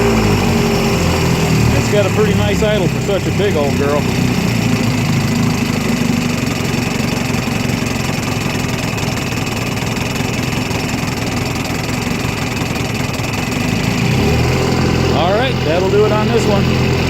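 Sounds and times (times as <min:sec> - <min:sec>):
outboard motor idling: 0:00.0 - 0:17.0.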